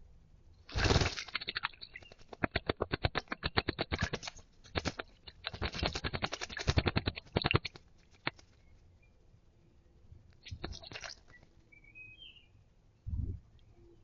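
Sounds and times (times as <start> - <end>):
bird splashing in water: 0.7 - 8.6, 10.4 - 11.4.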